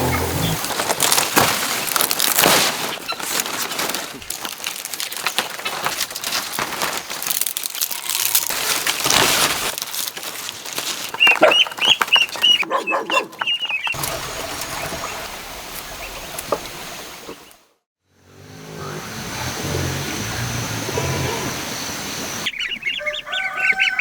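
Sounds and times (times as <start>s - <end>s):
poultry calling: 11.0s - 14.0s, 18.8s - 24.0s.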